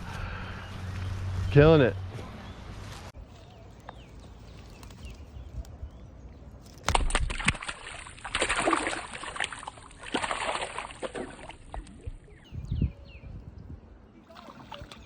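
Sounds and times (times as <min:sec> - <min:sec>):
water splashing and sloshing: 0:06.6 - 0:12.5, 0:14.1 - 0:15.0.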